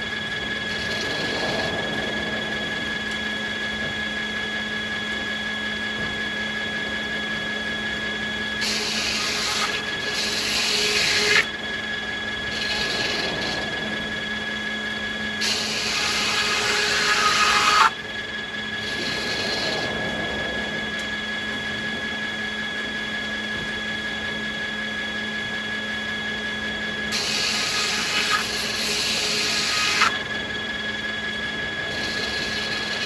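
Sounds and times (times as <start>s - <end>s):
saw cutting through wood: 0.0s - 3.1s, 8.4s - 20.0s, 27.1s - 33.0s
sawmill machinery humming: 0.0s - 33.0s.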